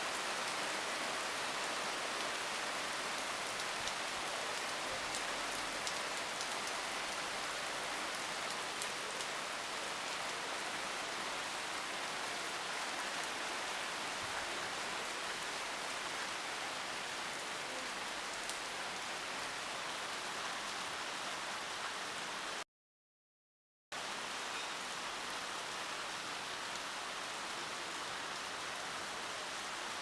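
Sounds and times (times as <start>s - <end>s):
steady rain falling: 0.0s - 22.6s, 24.0s - 30.0s.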